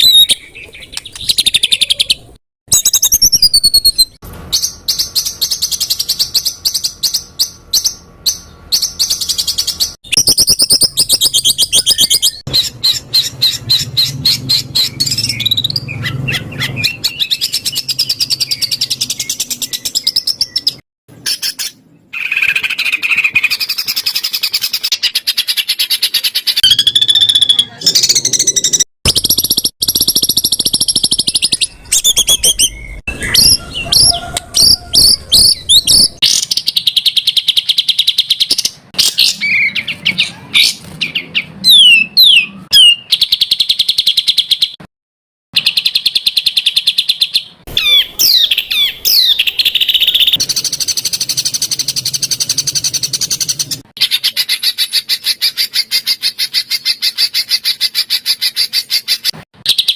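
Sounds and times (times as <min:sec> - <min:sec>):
sharp whistles: 0:10.1 - 0:13.6.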